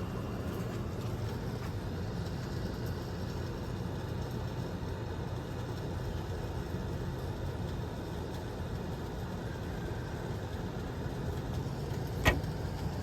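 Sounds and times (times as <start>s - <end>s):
air conditioner humming: 0.0s - 4.5s, 9.1s - 13.0s.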